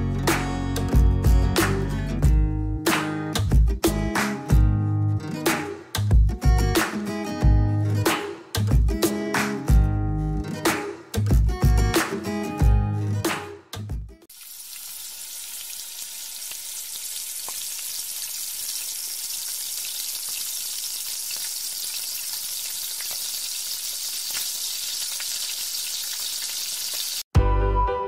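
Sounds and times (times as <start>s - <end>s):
music: 0.0s - 14.3s, 27.3s - 28.0s
potatoes sizzling in hot oil: 14.3s - 27.3s.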